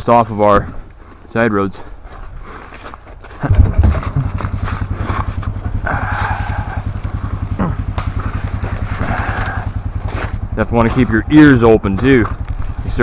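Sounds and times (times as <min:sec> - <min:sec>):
small engine idling: 0:03.5 - 0:13.0.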